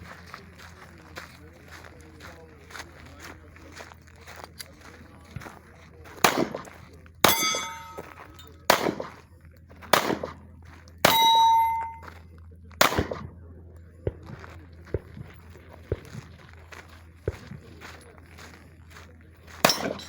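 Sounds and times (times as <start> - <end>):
pistol shots: 6.2 - 9.2, 9.8 - 10.4, 11.0 - 12.0, 12.8 - 13.4, 19.6 - 20.0
steel target ringing: 7.2 - 8.5, 11.0 - 12.1, 19.6 - 20.0.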